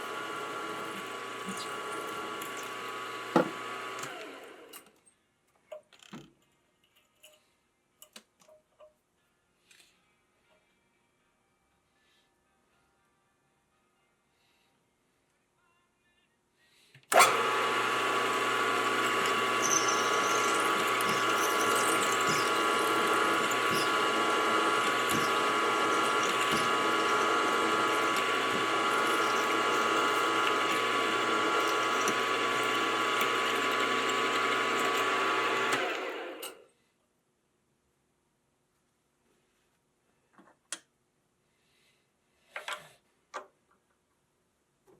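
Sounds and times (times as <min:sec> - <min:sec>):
machine tool spindle cutting metal: 0:00.0 - 0:04.8, 0:17.1 - 0:36.6.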